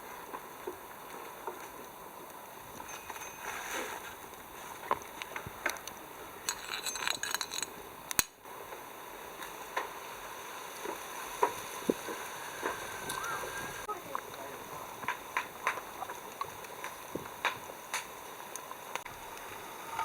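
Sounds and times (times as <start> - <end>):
small hard objects clinking: 5.6 - 8.4.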